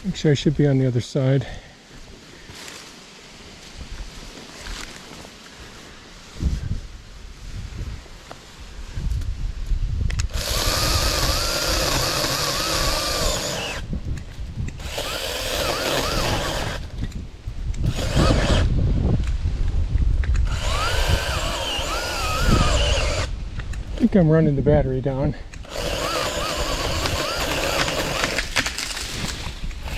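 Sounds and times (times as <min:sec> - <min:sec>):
electric chainsaw motor whirring: 0:10.2 - 0:14.0, 0:14.7 - 0:18.7, 0:20.3 - 0:24.0, 0:25.5 - 0:29.9.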